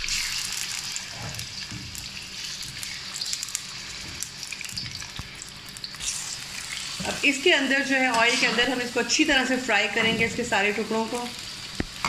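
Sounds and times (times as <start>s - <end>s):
oil popping and crackling: 0.0s - 7.2s, 11.2s - 12.0s
chicken sizzling in hot oil: 0.0s - 12.0s.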